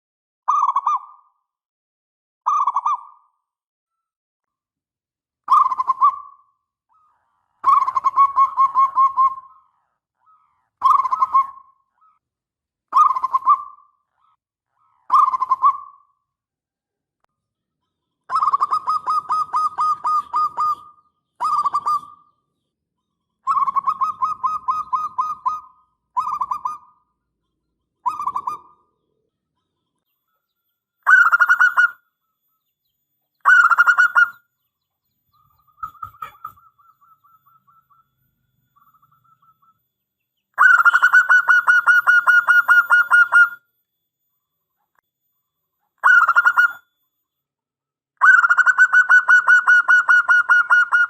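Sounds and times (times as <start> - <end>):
dove cooing in trilled phrases: 0.5 - 1.2, 2.5 - 3.2, 5.5 - 11.8, 12.9 - 14.3, 15.1 - 16.1, 18.3 - 22.3, 23.5 - 27.0, 28.0 - 29.0, 31.0 - 32.0, 33.4 - 34.4, 35.7 - 38.1, 40.6 - 43.6, 46.0 - 46.9, 48.2 - 51.0.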